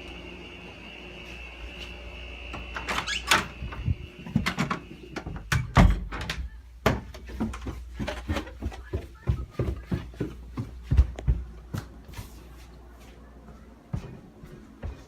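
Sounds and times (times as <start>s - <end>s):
window air conditioner humming: 0.0s - 15.0s
door knocks and rattles: 5.4s - 7.1s.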